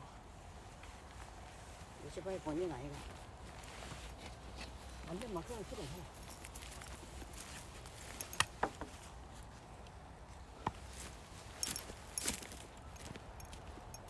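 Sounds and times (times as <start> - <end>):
knocks and clinks of firewood: 4.1 - 9.2, 10.6 - 14.0.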